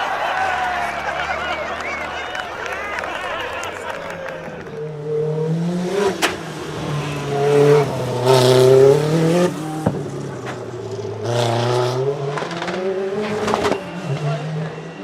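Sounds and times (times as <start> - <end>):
rally car engine revving: 4.6 - 15.0.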